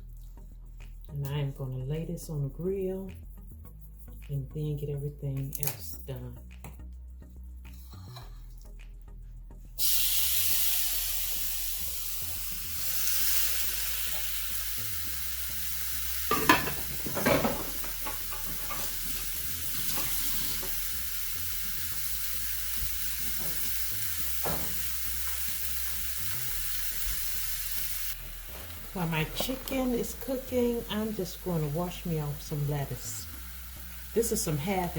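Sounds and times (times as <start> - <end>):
chicken sizzling on a grill: 9.8 - 34.9.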